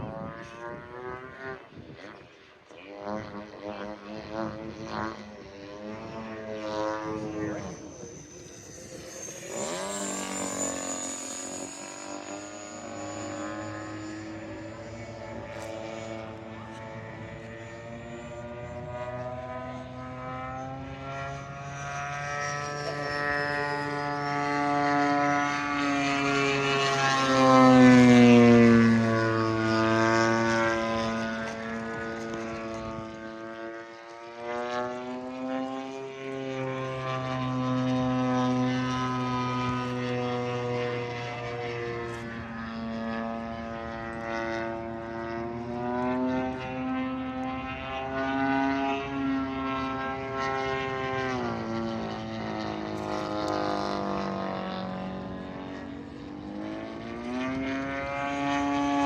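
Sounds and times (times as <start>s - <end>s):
model airplane motor drone: 0.0s - 59.0s.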